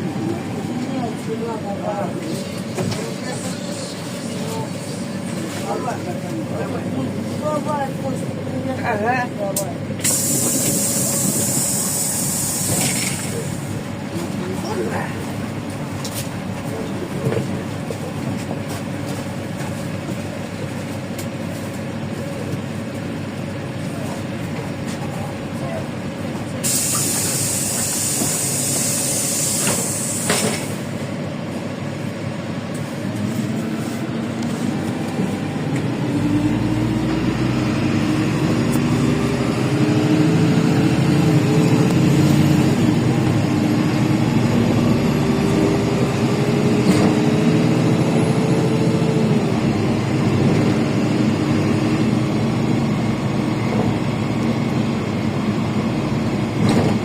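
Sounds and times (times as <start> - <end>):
bus engine accelerating: 0.0 - 57.0
compressed air hiss: 10.0 - 13.2, 26.6 - 30.5.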